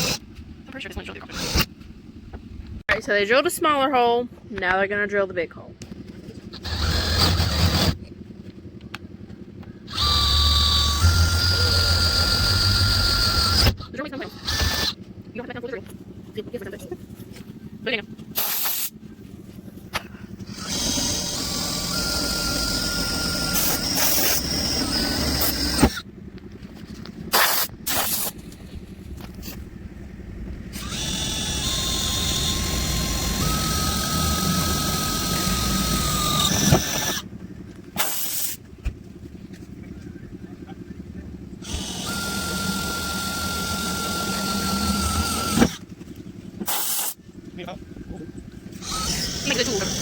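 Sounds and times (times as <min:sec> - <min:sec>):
power drill whining through metal: 0:00.0 - 0:00.2, 0:01.3 - 0:01.7, 0:06.5 - 0:08.1, 0:09.9 - 0:15.0, 0:20.4 - 0:26.0, 0:27.3 - 0:28.6, 0:30.7 - 0:37.3, 0:38.0 - 0:38.6, 0:41.6 - 0:45.9, 0:46.6 - 0:47.2, 0:48.7 - 0:50.0.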